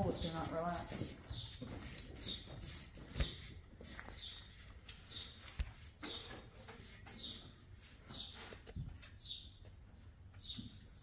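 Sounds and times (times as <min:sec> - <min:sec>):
small bird chirping: 0:00.0 - 0:02.5, 0:03.2 - 0:06.3, 0:07.0 - 0:08.5.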